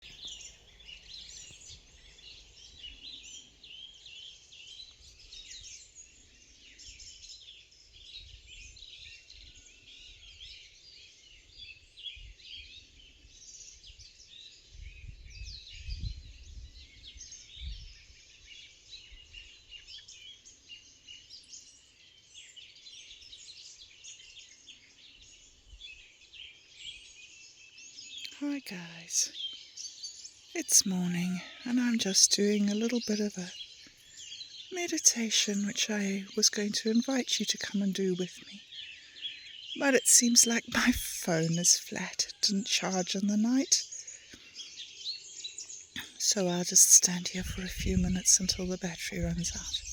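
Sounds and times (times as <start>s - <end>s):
songbirds chirping and trilling: 0.0s - 49.9s.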